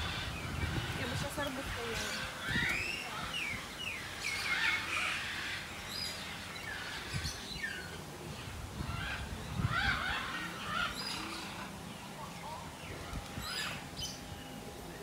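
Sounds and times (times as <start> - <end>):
birds chirping and whistling: 0.0 - 14.4.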